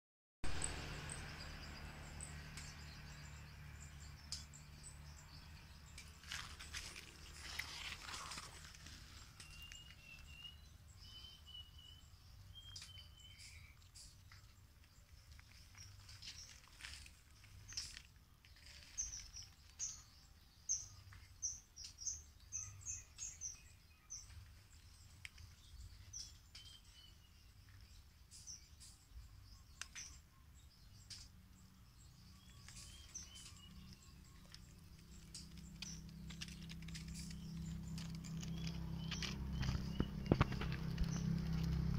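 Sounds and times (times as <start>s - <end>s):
small bird chirping: 0.4s - 41.9s
light clicks and rustles: 32.5s - 41.9s.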